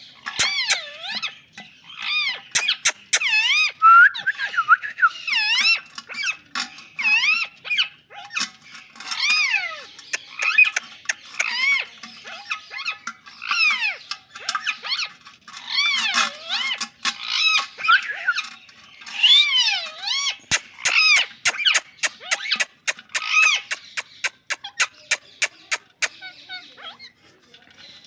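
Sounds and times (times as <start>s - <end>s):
parakeet squawking: 0.2s - 27.3s
parakeet sharp clicks: 2.5s - 3.4s, 20.5s - 26.1s.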